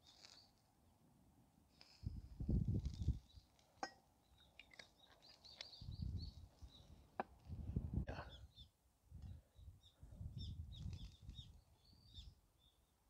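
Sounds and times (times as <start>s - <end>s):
small birds chirping: 0.0s - 0.6s, 2.8s - 7.2s, 8.1s - 13.0s.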